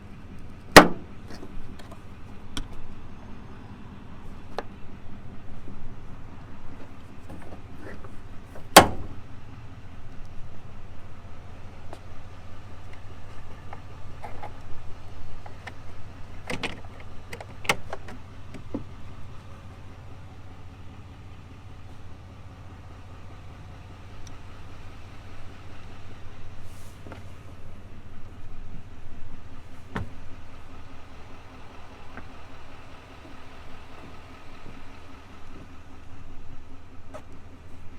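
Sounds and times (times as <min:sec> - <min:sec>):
diesel engine low hum: 0:00.0 - 0:37.9
sharp clicks and knocks: 0:15.4 - 0:18.9.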